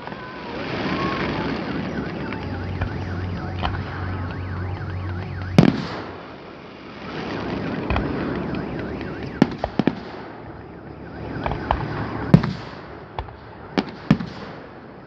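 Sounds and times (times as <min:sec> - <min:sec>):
firework cracks: 0:00.0 - 0:15.0
firework bang: 0:00.8 - 0:06.5, 0:07.2 - 0:14.8
warbling tone: 0:01.5 - 0:06.1.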